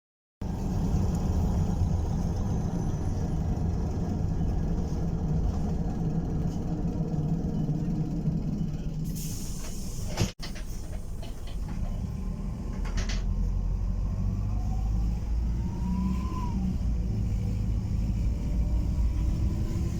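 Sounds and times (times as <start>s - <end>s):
bus engine and road rumble: 0.4s - 19.9s
air hiss: 9.0s - 10.4s.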